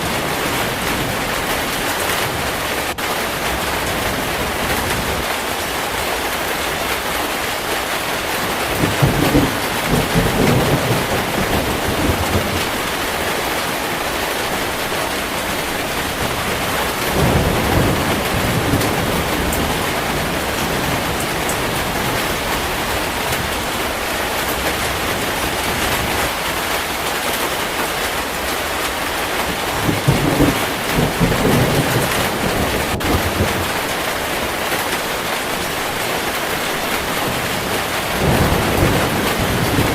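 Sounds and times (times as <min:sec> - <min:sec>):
heavy rain falling: 0:00.0 - 0:39.9
thunder rumbling: 0:08.0 - 0:26.5, 0:28.3 - 0:39.9.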